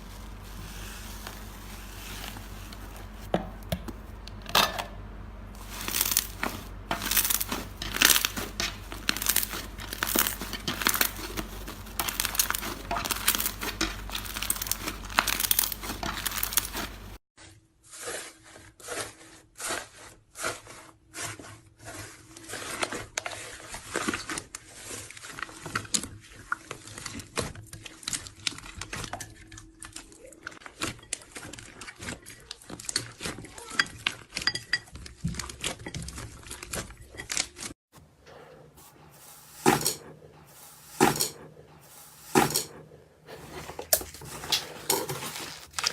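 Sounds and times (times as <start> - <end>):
slime crackling and popping: 5.6 - 17.0.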